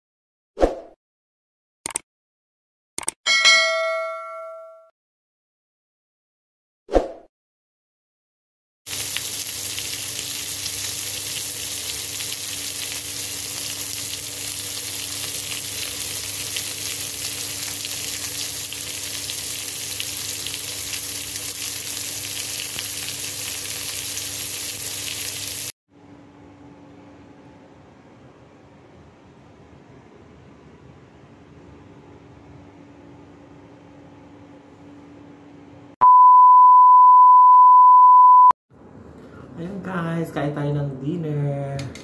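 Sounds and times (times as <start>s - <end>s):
meat sizzling in a pan: 8.9s - 25.7s.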